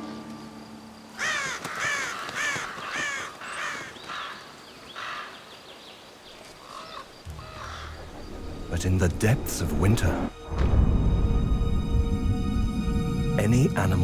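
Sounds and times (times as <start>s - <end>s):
ravens cawing: 1.2s - 5.4s, 6.6s - 8.7s.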